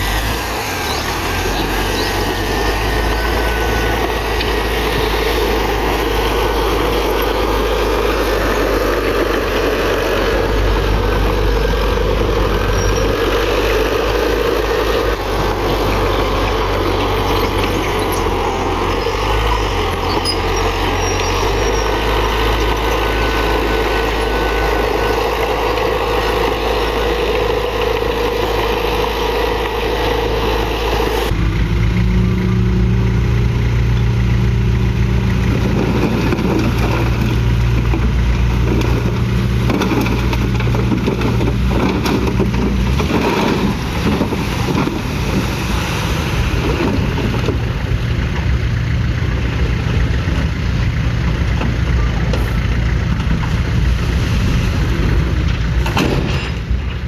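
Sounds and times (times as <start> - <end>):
heavy diesel machinery running: 0.0 - 57.0
metal clanking: 55.2 - 57.0.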